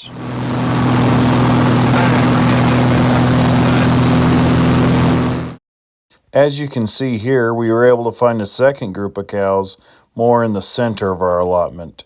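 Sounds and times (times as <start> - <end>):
propeller airplane engine drone: 0.0 - 5.6
wide rushing noise: 0.0 - 5.6.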